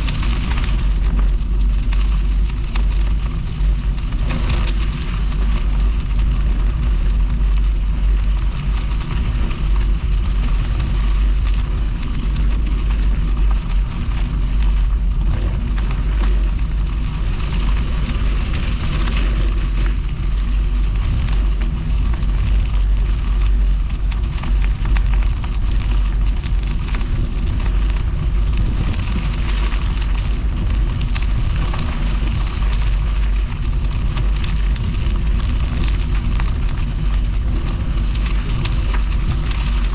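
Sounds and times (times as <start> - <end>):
bicycle tyres hissing on path: 0.0 - 39.9
wind buffeting microphone: 0.0 - 39.9.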